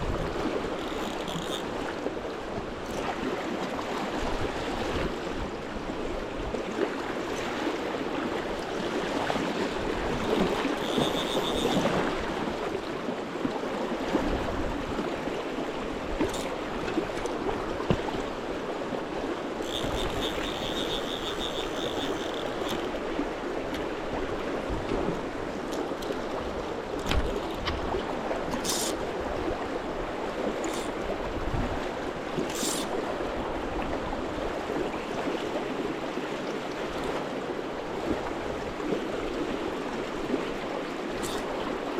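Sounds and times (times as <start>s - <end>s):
river current rushing: 14.0s - 34.9s.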